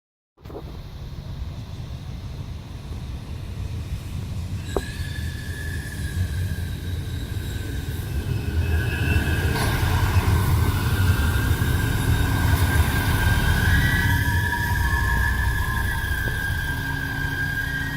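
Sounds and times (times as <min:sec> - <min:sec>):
diesel railcar rumble: 0:00.4 - 0:17.9
high-pitched wheel squeal: 0:04.6 - 0:17.9.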